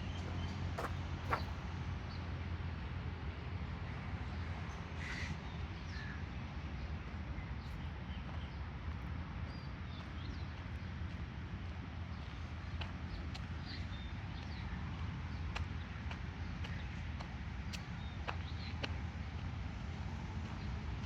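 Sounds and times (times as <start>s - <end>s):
small birds chirping: 0.0s - 1.6s.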